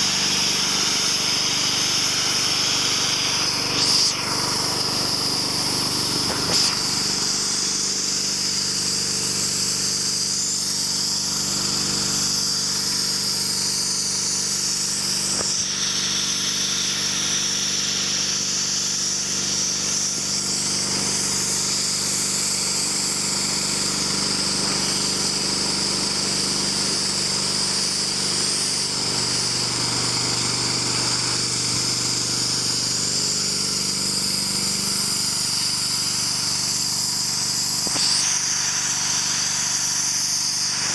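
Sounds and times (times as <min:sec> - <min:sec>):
high-pressure water spray hiss: 0:00.0 - 0:40.9
pressure washer motor hum: 0:00.0 - 0:40.9.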